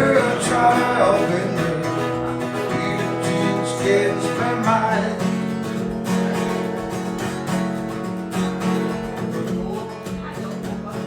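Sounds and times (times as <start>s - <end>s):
person singing: 0.0s - 5.9s
strummed acoustic guitar: 0.0s - 11.0s.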